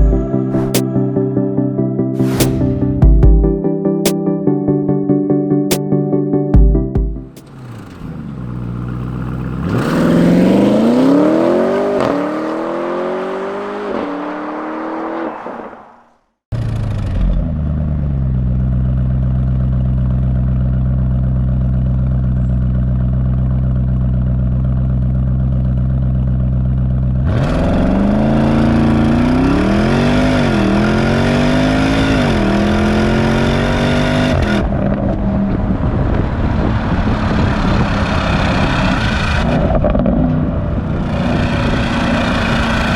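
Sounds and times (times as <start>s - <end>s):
car engine revving: 7.3s - 15.8s, 27.1s - 42.9s
car engine pulling away: 7.4s - 16.0s, 16.6s - 42.9s
car engine idling: 17.4s - 27.2s.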